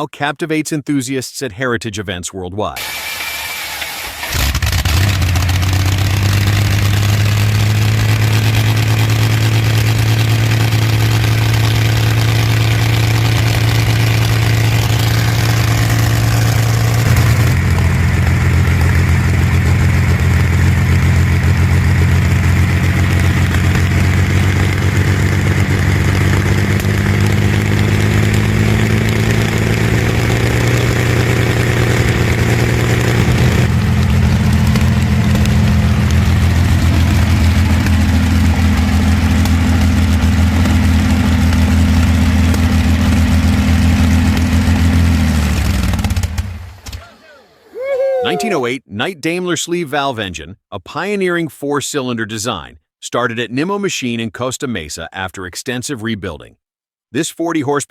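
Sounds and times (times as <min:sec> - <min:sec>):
aero engine running loudly: 0:02.8 - 0:46.8.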